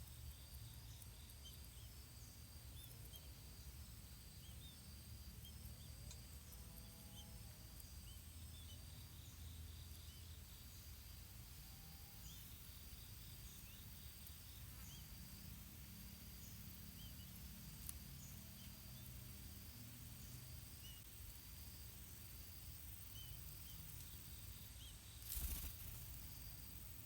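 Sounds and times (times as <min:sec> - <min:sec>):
high-pitched insect buzz: 0:23.1 - 0:27.0.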